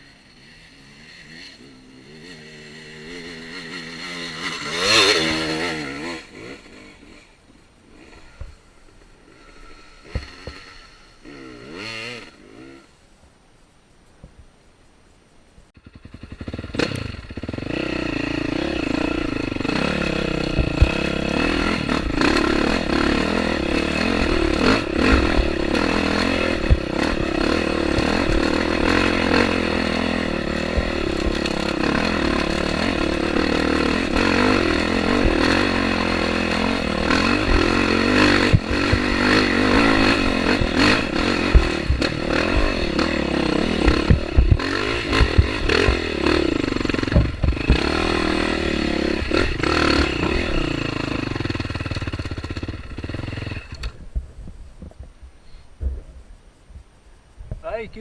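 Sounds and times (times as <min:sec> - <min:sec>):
dirt bike engine running: 0:00.0 - 0:12.8, 0:15.8 - 0:56.3
sharp clattering knocks: 0:38.3 - 0:48.2.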